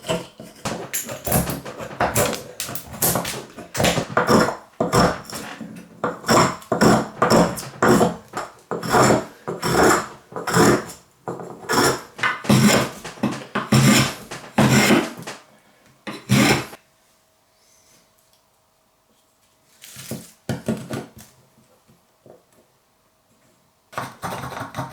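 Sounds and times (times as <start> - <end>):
hand tool scraping: 0.0 - 15.4, 16.1 - 16.8.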